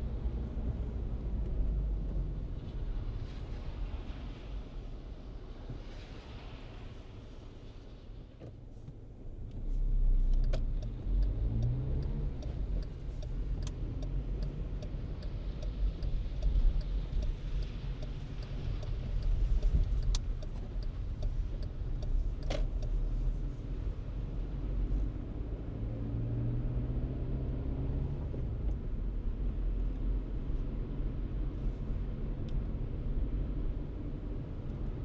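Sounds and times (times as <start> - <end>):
car engine and road rumble: 0.0 - 35.0
light regular ticking: 10.3 - 23.3.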